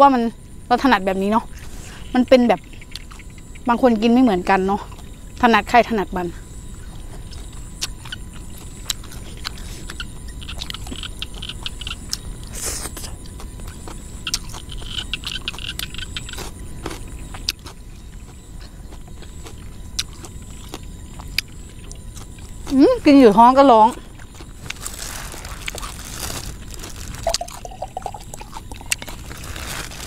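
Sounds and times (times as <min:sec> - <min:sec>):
person chewing with lip smacks: 0:07.4 - 0:12.2, 0:12.8 - 0:22.8.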